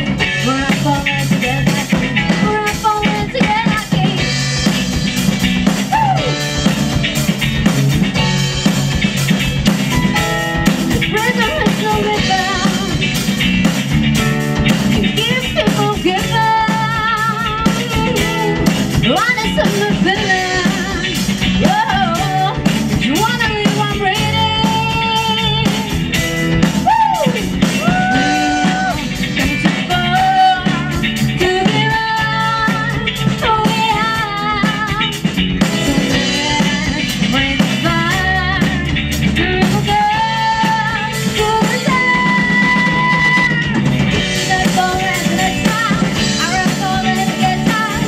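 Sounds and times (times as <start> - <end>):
bending guitar notes: 0.0 - 47.8
drums keeping a steady beat: 0.0 - 48.0
rock band playing live: 0.0 - 48.0.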